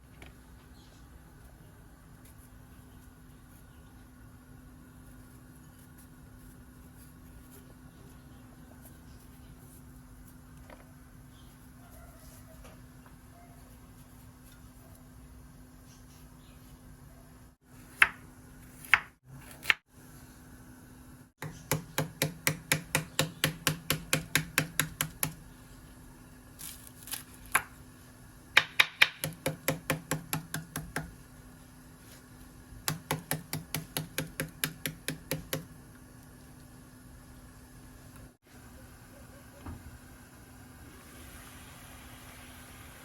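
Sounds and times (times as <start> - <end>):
knife chopping on cutting board: 17.9 - 19.8, 21.4 - 25.4, 32.9 - 35.7.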